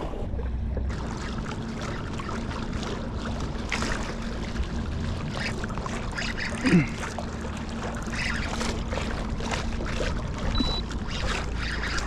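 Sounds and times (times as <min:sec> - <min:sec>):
water rushing along hull: 0:00.0 - 0:12.0.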